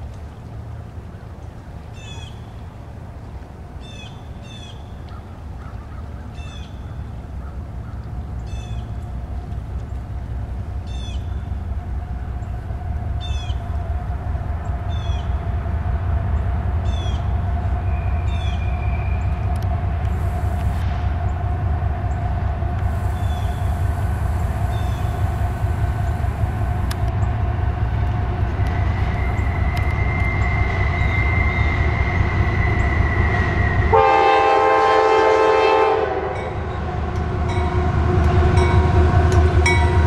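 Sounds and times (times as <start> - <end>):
locomotive engine rumble: 0.0 - 40.0
steady whine: 9.0 - 35.3.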